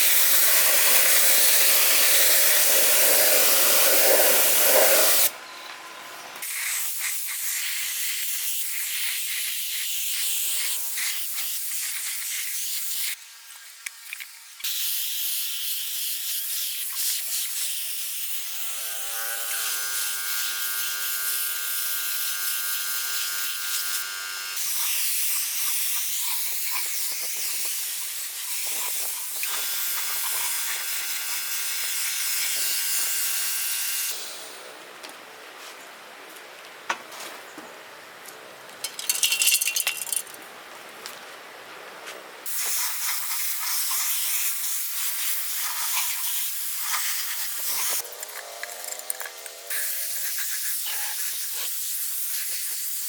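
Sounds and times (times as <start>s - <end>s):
pressurised spray hissing: 0.0s - 5.3s, 6.4s - 13.2s, 24.6s - 30.9s, 42.5s - 48.0s, 49.7s - 53.0s.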